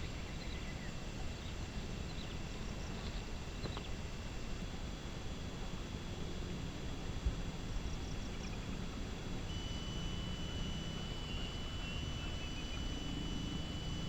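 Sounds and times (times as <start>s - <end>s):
insect trill: 9.5s - 14.0s.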